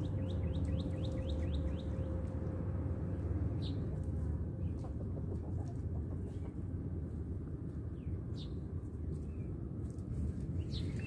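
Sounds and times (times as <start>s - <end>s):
birds chirping: 0.0s - 2.4s, 10.5s - 11.0s
low wind rumble: 0.0s - 11.0s
bird clucking calls: 4.7s - 6.6s.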